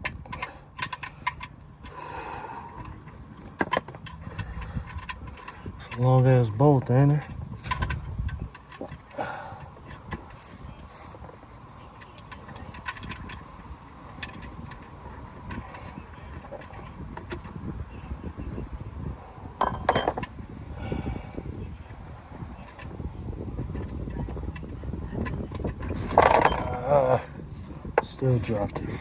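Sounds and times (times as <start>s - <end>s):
low steady rumble: 0.0s - 29.0s
metallic clatter: 19.6s - 20.3s, 25.6s - 27.0s
hand tools clicking on metal: 25.6s - 27.3s.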